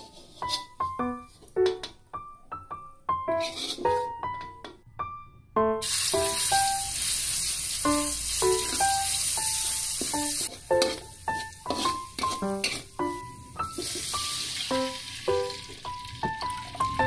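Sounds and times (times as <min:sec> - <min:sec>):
gentle piano music: 0:00.0 - 0:17.0
spoon stirring in a wok: 0:03.3 - 0:04.2, 0:09.9 - 0:14.1
food sizzling in a wok: 0:05.8 - 0:17.0.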